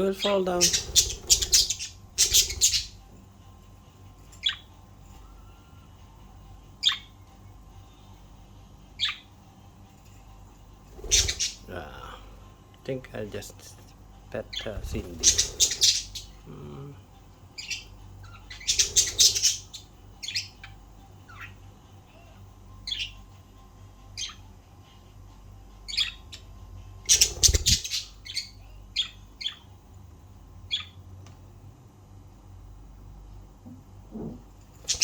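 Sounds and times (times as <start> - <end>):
budgerigars chirping: 0.0 - 3.0, 4.4 - 4.7, 6.8 - 7.1, 9.0 - 9.3, 11.0 - 11.6, 14.4 - 16.4, 17.6 - 21.6, 22.8 - 23.2, 25.9 - 29.7, 30.7 - 31.0.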